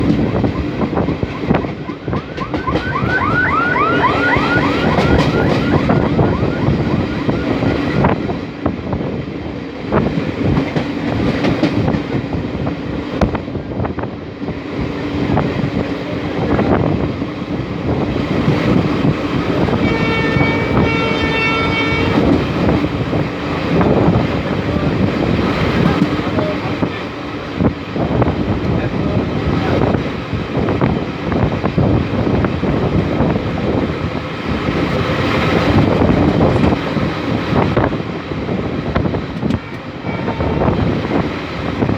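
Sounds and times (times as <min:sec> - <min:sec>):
high wheel squeal: 0:00.0 - 0:08.2
train rumbling over bridge: 0:00.0 - 0:41.9
train horn: 0:19.7 - 0:22.4, 0:39.7 - 0:40.9.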